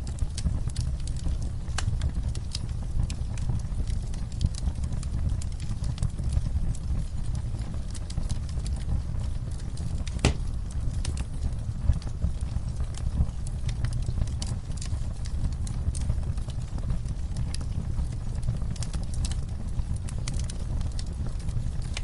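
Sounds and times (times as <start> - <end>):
fireplace crackling: 0.0 - 22.0
steady low rumble: 0.0 - 22.0
sharp pops: 10.2 - 10.5.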